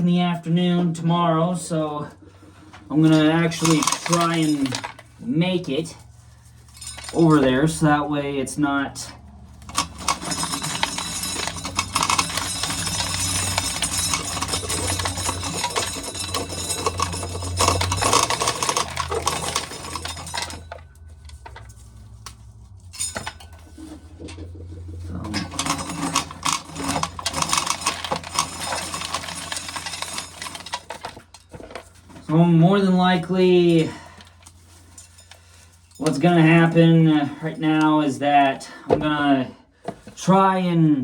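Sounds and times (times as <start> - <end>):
corn kernels rattling into a pail: 2.9 - 5.1, 9.6 - 22.1, 25.2 - 32.4.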